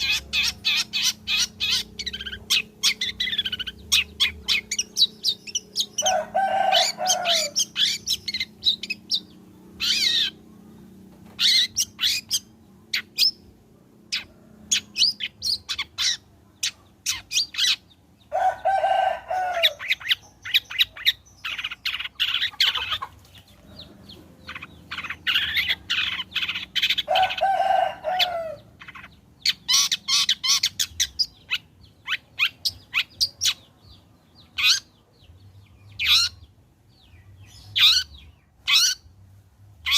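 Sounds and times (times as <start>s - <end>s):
shrike chattering song: 0.0s - 13.5s, 14.1s - 33.8s.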